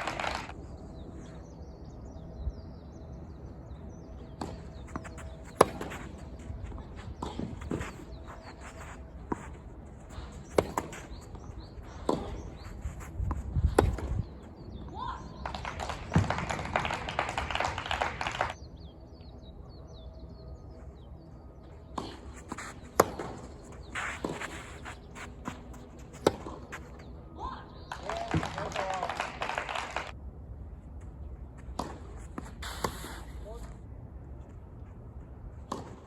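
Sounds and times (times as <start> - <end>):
tennis ball hit by racquets: 4.3 - 14.3, 22.0 - 26.9
tennis ball bouncing: 4.3 - 15.0, 22.0 - 27.1, 35.7 - 36.0
crowd noise: 28.0 - 30.1.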